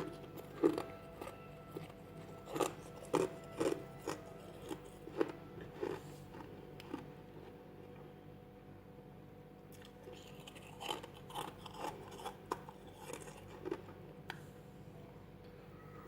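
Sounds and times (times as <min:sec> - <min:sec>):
crunching of chewed frost: 0:00.0 - 0:07.6, 0:09.7 - 0:14.4
steady low hum: 0:00.0 - 0:16.0.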